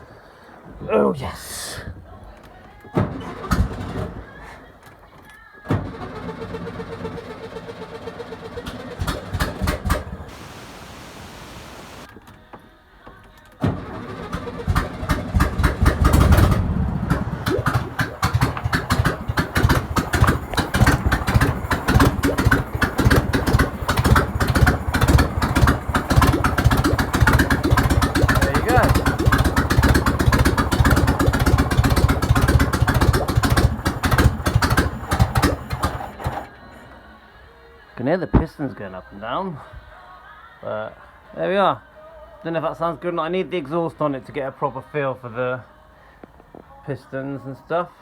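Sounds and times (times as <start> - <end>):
car engine cranking and running: 2.9 - 12.1, 13.6 - 37.0.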